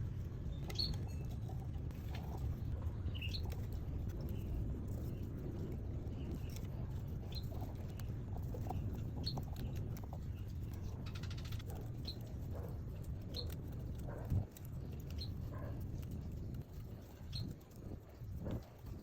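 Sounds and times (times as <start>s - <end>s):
low background rumble: 0.0s - 19.0s.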